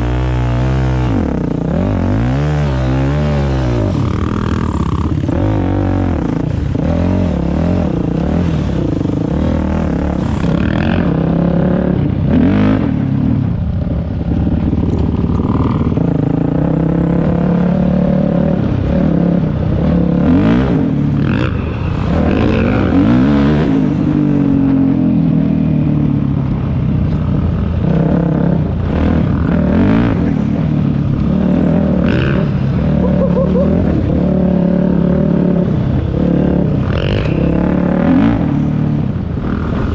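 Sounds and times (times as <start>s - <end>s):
dirt bike engine revving: 0.0s - 25.6s, 27.5s - 39.9s.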